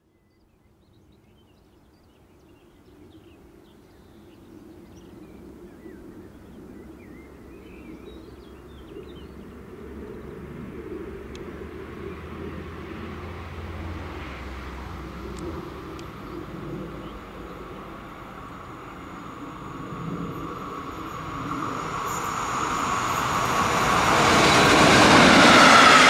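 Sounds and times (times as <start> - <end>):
electric train running: 17.6 - 26.0.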